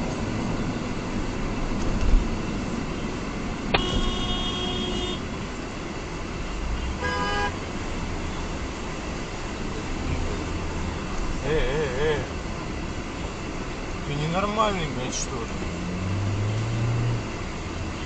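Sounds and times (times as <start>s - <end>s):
car road noise: 0.0s - 18.0s
car horn honking: 3.7s - 5.3s, 6.8s - 7.7s.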